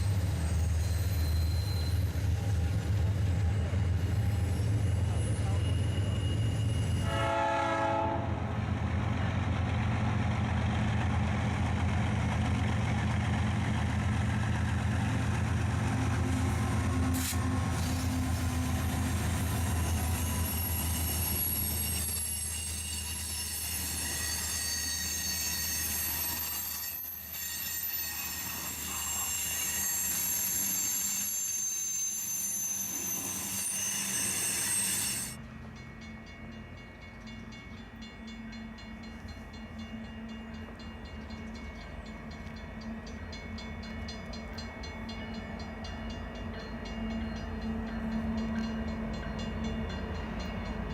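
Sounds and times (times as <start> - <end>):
high-pitched wheel squeal: 0.0 - 2.4, 4.2 - 7.1, 19.4 - 35.4
rolling train cars: 0.0 - 50.9
train horn: 7.0 - 8.6.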